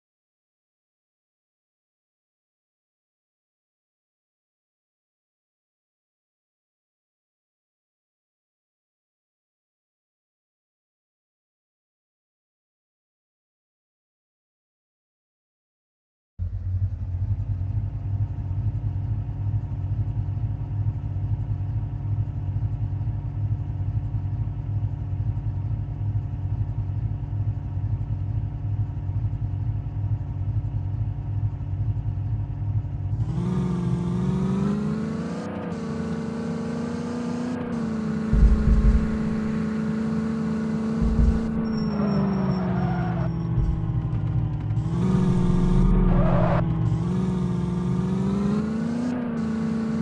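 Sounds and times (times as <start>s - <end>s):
vehicle engine running: 16.4s - 50.0s
deep thumps: 38.3s - 39.8s, 40.9s - 42.0s, 43.4s - 46.6s.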